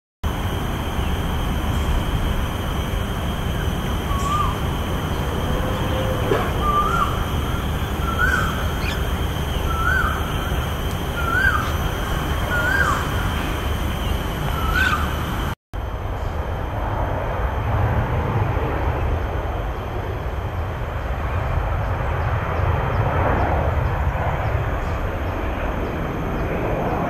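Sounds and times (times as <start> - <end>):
bird calling: 2.9 - 15.6.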